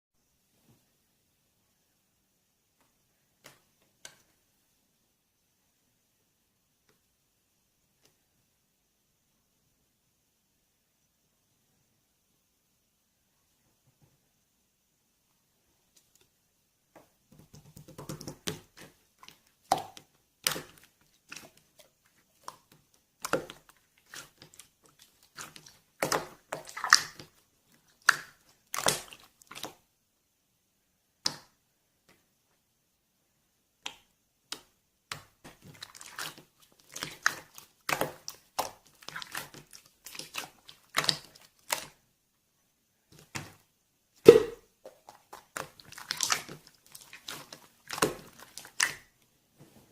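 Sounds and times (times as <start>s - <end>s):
slime squishing: 17.4s - 29.9s, 33.8s - 42.0s, 43.1s - 43.6s, 44.2s - 49.2s.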